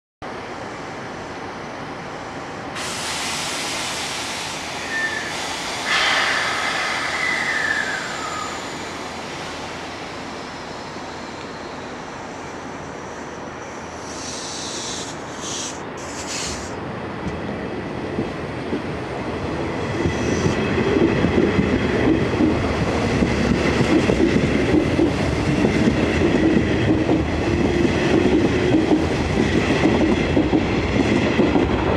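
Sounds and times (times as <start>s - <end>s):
train wheels rumbling on rail: 0.3s - 31.9s
air hissing in bursts: 2.8s - 10.6s, 14.0s - 16.8s.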